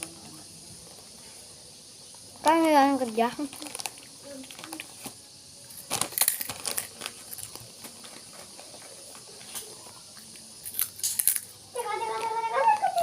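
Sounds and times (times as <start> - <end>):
faint steady hiss: 0.0 - 13.0
potato snack crunching: 5.7 - 9.0, 10.3 - 11.6.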